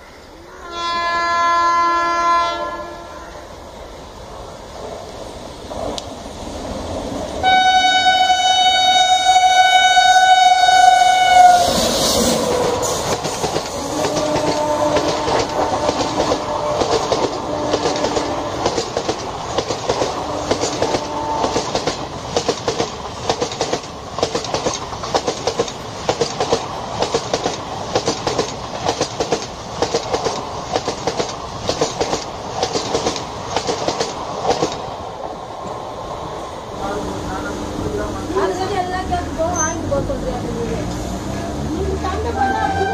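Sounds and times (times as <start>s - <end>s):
locomotive horn blast: 0.5s - 3.4s, 7.4s - 12.2s, 13.8s - 18.8s, 20.2s - 21.7s, 42.1s - 42.9s
train wheels clattering: 11.6s - 35.0s.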